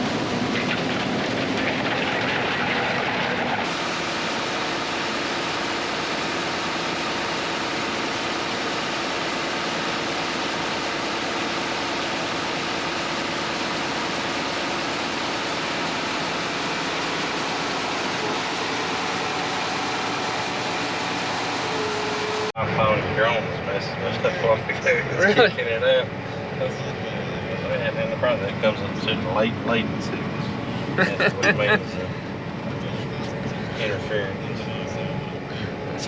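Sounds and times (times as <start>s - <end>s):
engine drone: 0.0s - 36.0s
ventilation fan rush: 0.0s - 36.0s.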